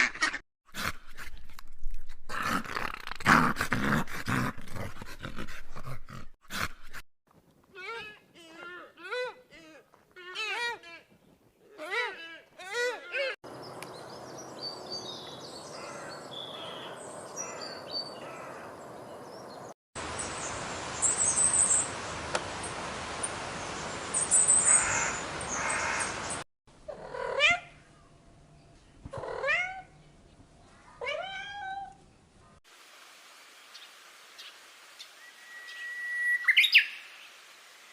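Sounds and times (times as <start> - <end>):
cat meowing: 31.0 - 32.0
background hiss: 32.7 - 37.9.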